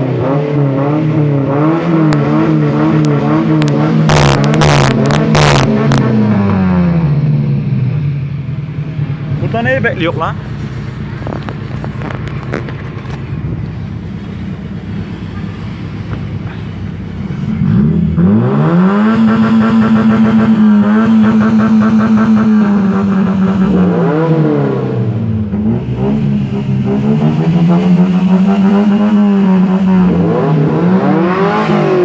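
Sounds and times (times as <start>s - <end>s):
car engine revving: 0.0s - 32.0s.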